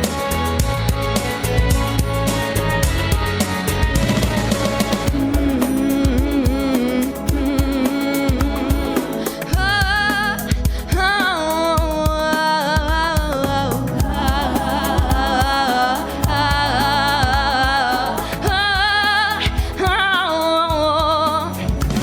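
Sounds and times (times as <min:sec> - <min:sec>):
pop backing track: 0:00.0 - 0:22.0
girl singing with vibrato: 0:05.0 - 0:21.6.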